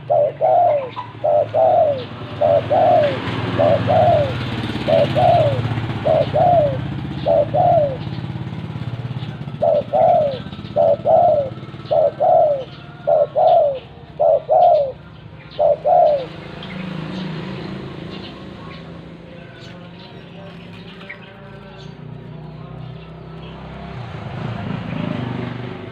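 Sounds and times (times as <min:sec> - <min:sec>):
dove cooing: 0:00.0 - 0:19.1.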